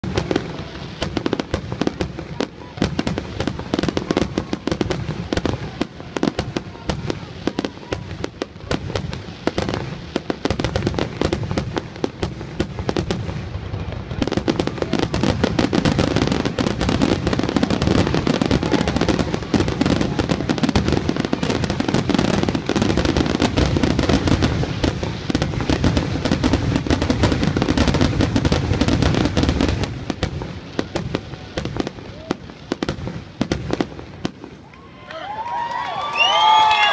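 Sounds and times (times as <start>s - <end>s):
fireworks crackle: 0.0s - 36.9s
fireworks launching and bursting: 0.0s - 36.9s.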